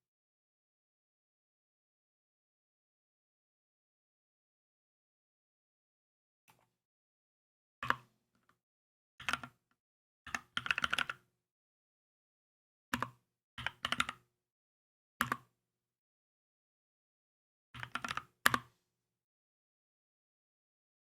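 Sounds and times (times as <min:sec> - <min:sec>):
mechanical keyboard typing: 0:10.3 - 0:11.2, 0:13.0 - 0:14.2, 0:17.8 - 0:18.6.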